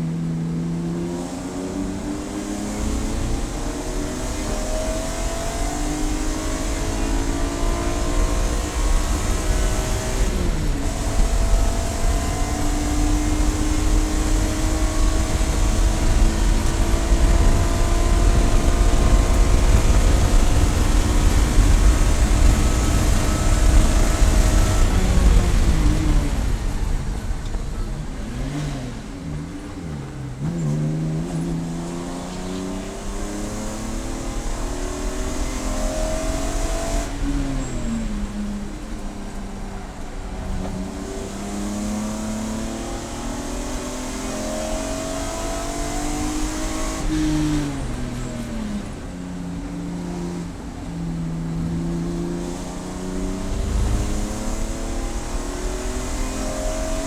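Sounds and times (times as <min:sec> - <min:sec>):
race car engine accelerating: 0:00.0 - 0:57.0
downshift engine blips: 0:49.6 - 0:57.0.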